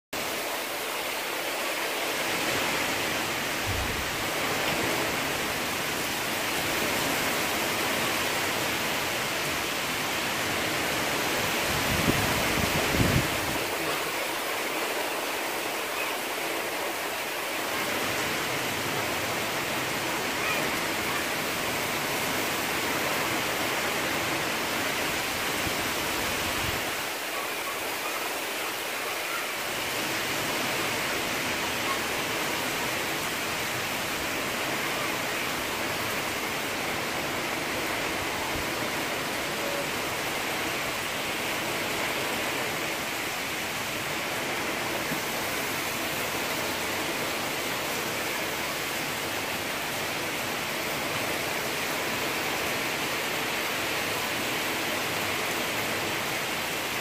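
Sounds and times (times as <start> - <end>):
heavy rain pouring: 0.1 - 57.0
wind rumbling on microphone: 10.6 - 14.0.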